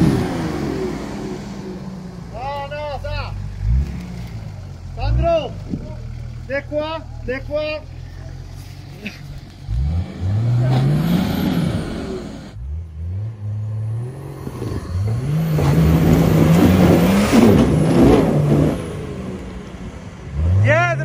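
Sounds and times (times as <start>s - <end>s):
engine revving hard: 9.6s - 19.3s.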